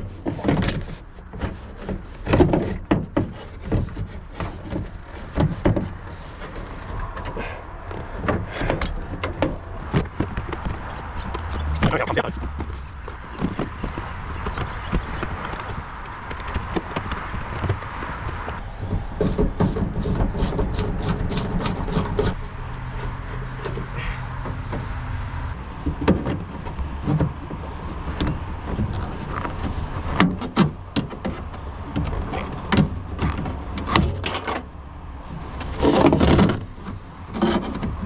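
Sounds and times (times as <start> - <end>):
ratchet clicks: 18.9 - 22.4.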